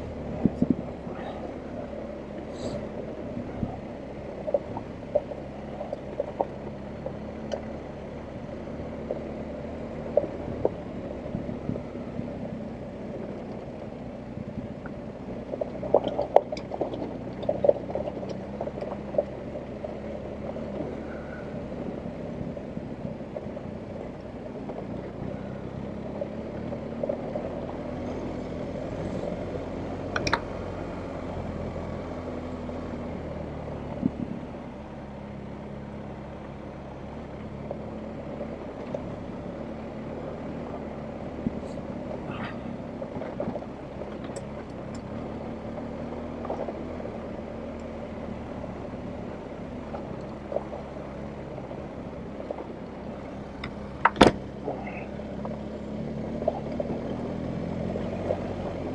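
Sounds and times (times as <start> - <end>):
motorcycle engine at low revs: 0.0 - 58.9.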